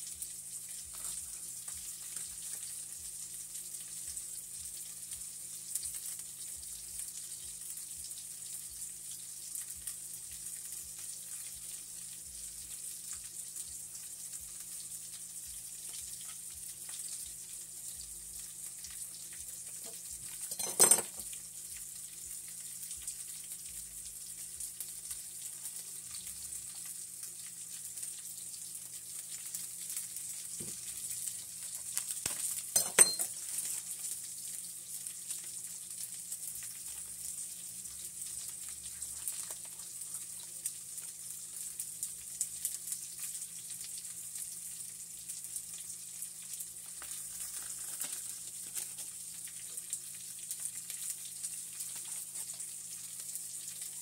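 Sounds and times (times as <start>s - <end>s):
food sizzling in a pan: 0.0s - 54.0s
container clinking on steel bowl: 20.5s - 21.2s, 32.8s - 33.4s.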